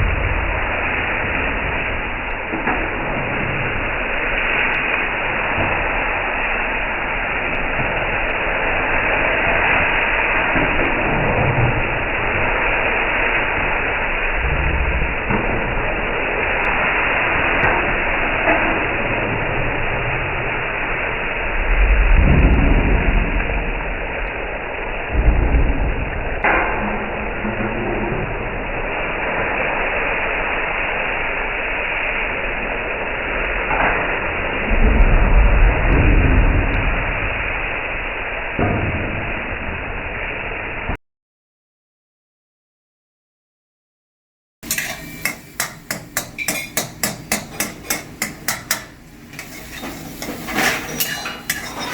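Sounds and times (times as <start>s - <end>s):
low rumbles and thumps: 0.0s - 3.8s, 21.5s - 24.4s, 25.0s - 28.6s, 34.5s - 37.5s
chicken sizzling in a pan: 0.4s - 14.4s, 44.6s - 51.9s.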